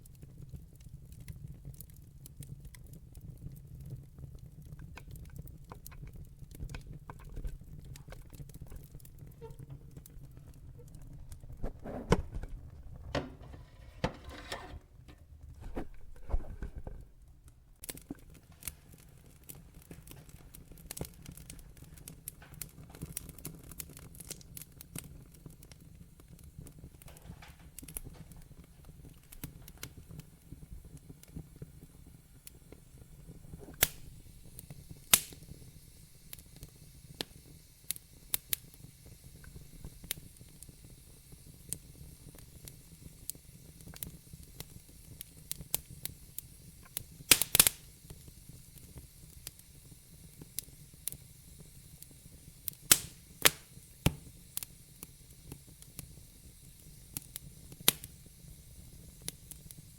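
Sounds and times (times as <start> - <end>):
log fire crackling: 0.0 - 59.9.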